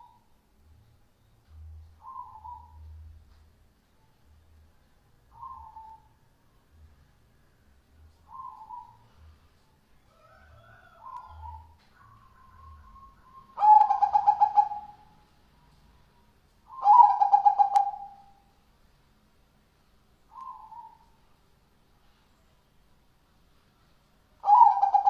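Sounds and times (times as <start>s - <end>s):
doves cooing: 10.5s - 15.2s, 16.7s - 18.3s, 24.4s - 25.0s.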